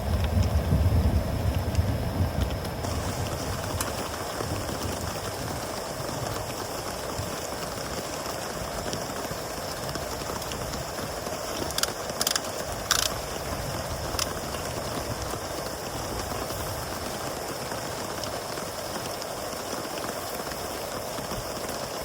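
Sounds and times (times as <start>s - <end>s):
steady rain: 0.0s - 22.0s
insects chirring: 9.2s - 19.2s.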